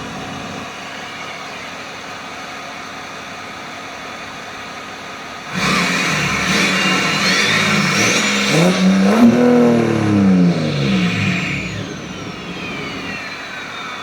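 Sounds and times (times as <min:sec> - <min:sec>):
car engine idling and revving: 0:05.3 - 0:14.0.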